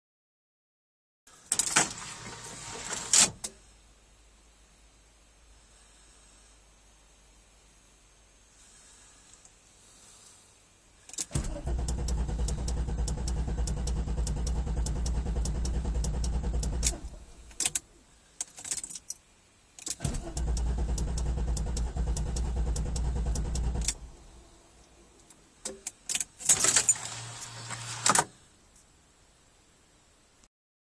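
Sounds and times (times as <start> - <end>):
starter motor cranking engine: 11.3 - 17.5, 20.0 - 24.0
keys rattling and clicking: 18.4 - 19.2.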